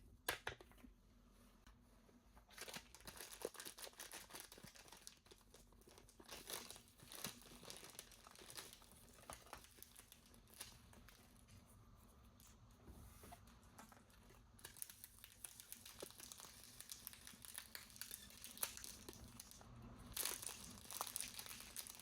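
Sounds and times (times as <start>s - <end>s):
packaging crinkling and tearing: 2.5s - 11.2s, 14.0s - 22.0s.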